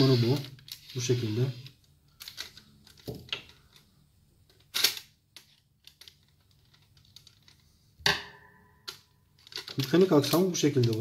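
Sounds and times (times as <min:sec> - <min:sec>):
plastic mechanism clicks: 0:08.8 - 0:11.0.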